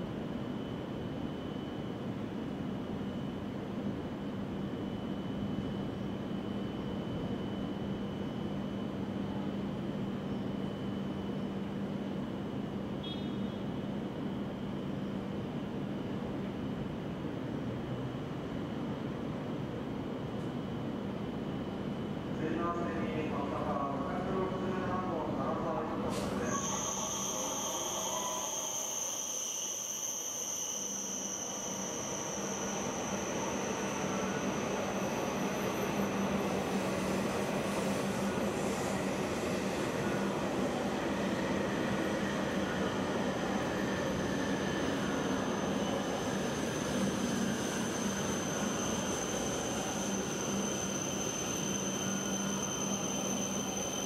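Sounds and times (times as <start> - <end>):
rumble of passing train cars: 0.0 - 54.0
high-pitched train squeal: 12.9 - 15.6, 22.8 - 54.0
thin high whine: 24.2 - 54.0.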